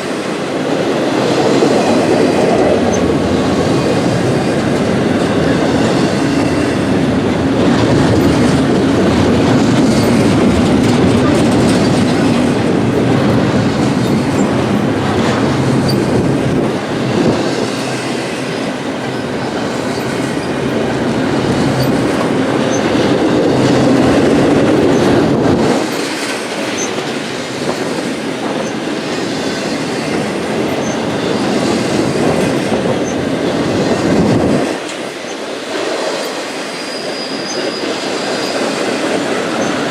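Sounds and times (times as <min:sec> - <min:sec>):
freight train wheels clicking on rails: 0:00.0 - 0:39.9.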